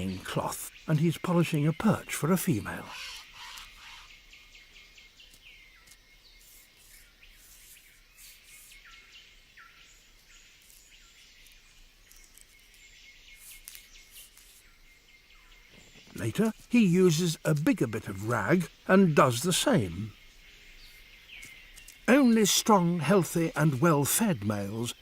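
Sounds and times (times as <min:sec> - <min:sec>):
downward-sliding bird calls: 0:00.0 - 0:04.4, 0:05.2 - 0:09.2, 0:11.4 - 0:14.8
insect hiss: 0:00.0 - 0:25.0.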